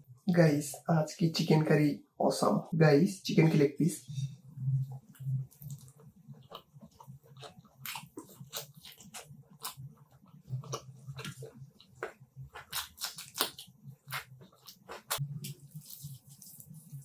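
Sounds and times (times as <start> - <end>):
wet chewing and mouth smacks: 4.8 - 17.0.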